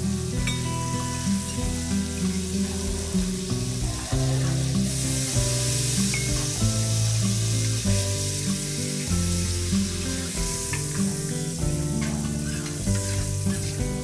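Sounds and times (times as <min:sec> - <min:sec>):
background music with bass: 0:00.0 - 0:14.0
steaks sizzling on a griddle: 0:00.0 - 0:14.0
metal spatula scraping: 0:12.0 - 0:13.9.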